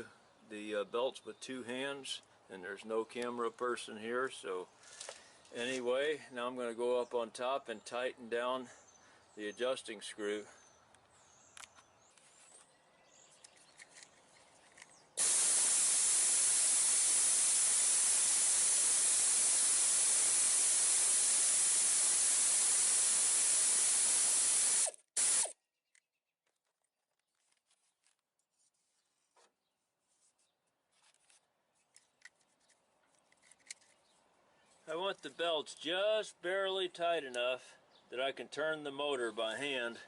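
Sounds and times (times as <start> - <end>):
loud steady hiss: 15.2 - 25.5
faint clicks and rubbing: 25.9 - 35.3.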